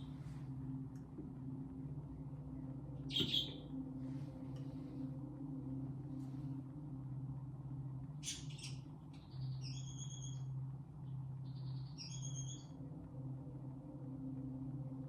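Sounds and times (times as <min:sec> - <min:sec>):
low humming drone tone: 0:00.0 - 0:15.0
high bird-like chirps: 0:03.1 - 0:03.6.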